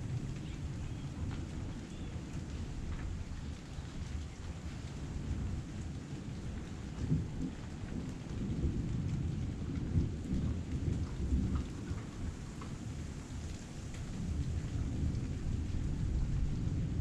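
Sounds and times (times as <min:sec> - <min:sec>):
heavy rain falling: 0:00.0 - 0:17.0
small drips ticking: 0:00.0 - 0:17.0.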